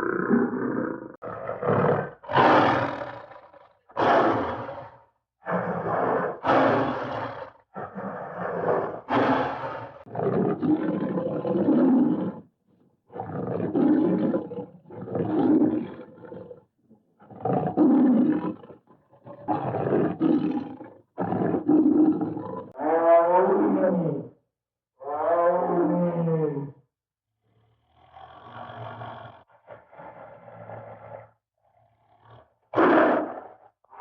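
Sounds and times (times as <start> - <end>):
cartoon animal roars: 0.0 - 12.4, 17.3 - 24.4, 25.0 - 26.8.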